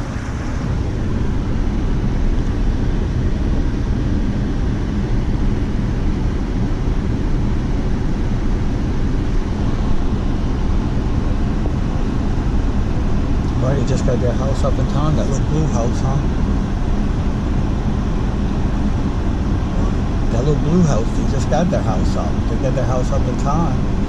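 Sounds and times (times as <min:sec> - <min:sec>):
wind noise on microphone: 0:00.0 - 0:13.6
engine rumbling: 0:00.0 - 0:24.0.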